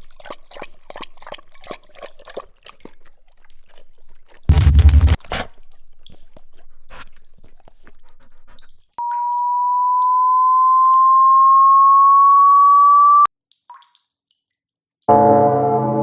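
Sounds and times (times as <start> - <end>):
pure electronic tone: 4.5 - 5.2, 9.2 - 13.3, 15.1 - 16.0.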